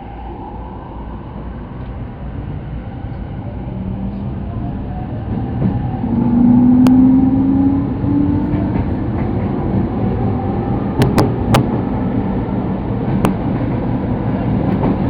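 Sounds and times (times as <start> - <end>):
electric train rumble: 0.0 - 15.0.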